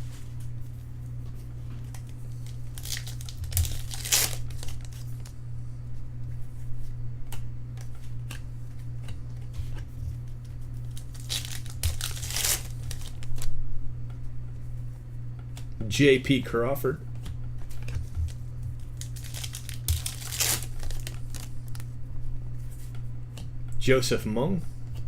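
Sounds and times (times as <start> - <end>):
low electrical hum: 0.0 - 25.0
foil wrappers tearing and crinkling: 1.8 - 5.4, 10.7 - 13.5, 18.3 - 21.9.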